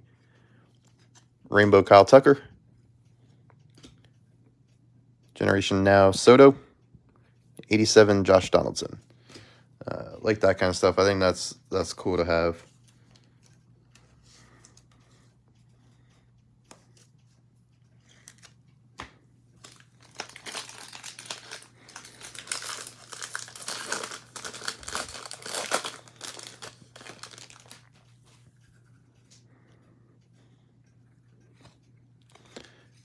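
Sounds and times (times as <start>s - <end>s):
foil wrapper tearing and crinkling: 19.6s - 27.9s.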